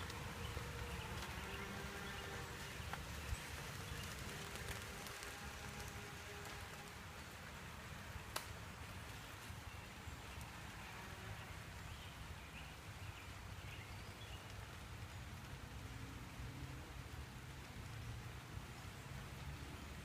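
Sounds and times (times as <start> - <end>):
light rain: 0.0 - 20.0.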